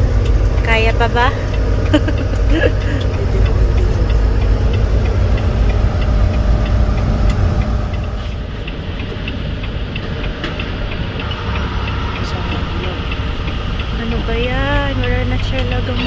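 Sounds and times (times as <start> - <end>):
faint regular ticking: 0.0 - 16.0
truck engine and road drone: 0.0 - 16.0.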